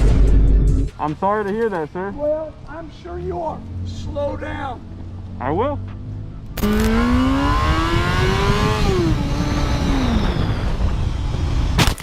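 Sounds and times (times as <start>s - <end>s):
wind and road noise: 0.0s - 12.0s
motorcycle engine accelerating: 5.0s - 11.8s.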